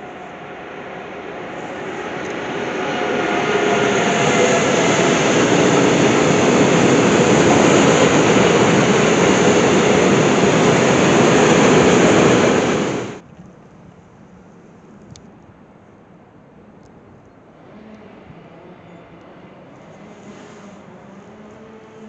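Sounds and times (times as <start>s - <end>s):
steel wheels rushing on rails: 0.0s - 13.2s, 19.8s - 22.0s.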